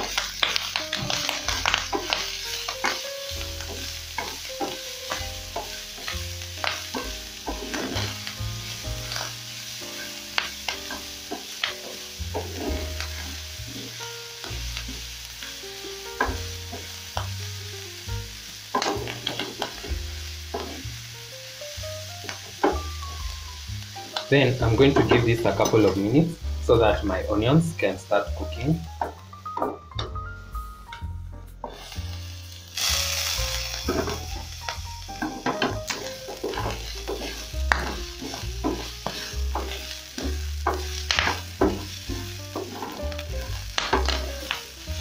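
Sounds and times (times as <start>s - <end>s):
wooden spatula scraping a pan: 0.0s - 17.4s, 18.7s - 21.1s, 24.1s - 29.8s, 31.6s - 32.4s, 33.5s - 45.0s
food sizzling in hot oil: 0.0s - 45.0s.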